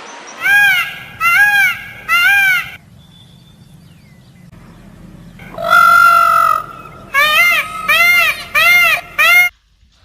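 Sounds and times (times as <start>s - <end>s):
animal calls: 5.4s - 9.5s.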